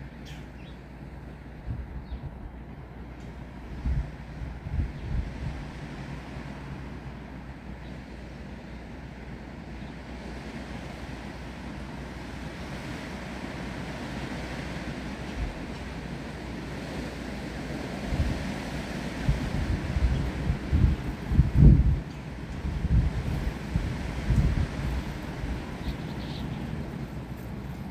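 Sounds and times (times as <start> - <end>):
wind and rain through trees: 0.0 - 27.9
wind gusts buffeting microphone: 1.5 - 2.7, 3.4 - 7.1, 12.0 - 27.9.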